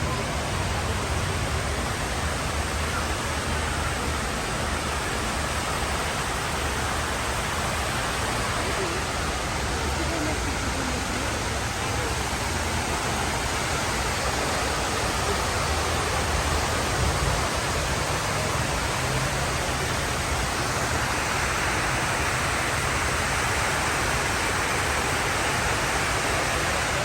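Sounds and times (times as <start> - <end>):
rushing waterfall: 0.0 - 27.0.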